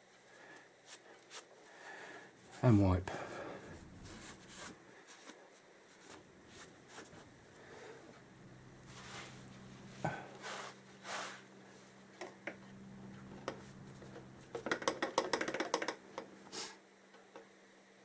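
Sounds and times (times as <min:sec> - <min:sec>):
low steady hum: 0:02.0 - 0:04.8, 0:06.1 - 0:15.0
rag wiping swishes: 0:02.4 - 0:04.8, 0:06.1 - 0:11.8.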